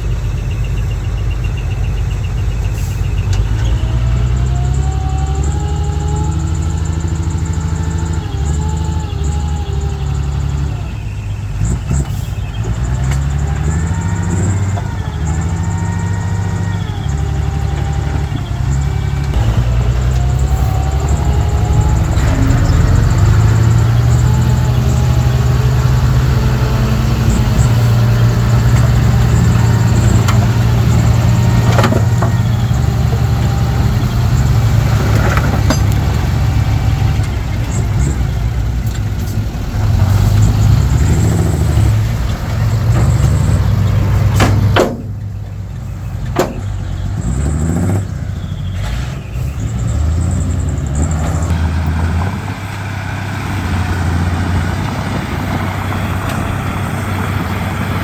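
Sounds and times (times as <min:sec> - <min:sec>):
bulldozer diesel engine running: 0:00.0 - 0:58.0
sharp metal clanks: 0:35.2 - 0:36.1.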